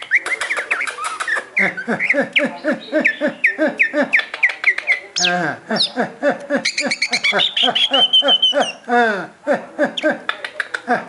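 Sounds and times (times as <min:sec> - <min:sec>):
bird singing down-slurred notes: 0:00.0 - 0:06.0.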